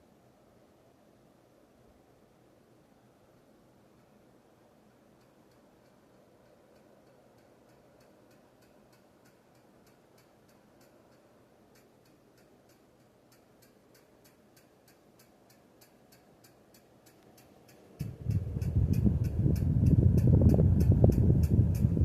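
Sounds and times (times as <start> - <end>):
ceiling fan humming: 0.0 - 22.0
rhythmic fan ticking: 3.9 - 22.0.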